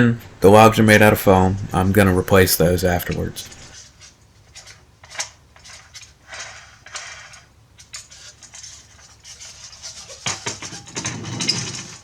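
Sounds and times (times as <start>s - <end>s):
clatter of knocks: 9.7s - 12.0s.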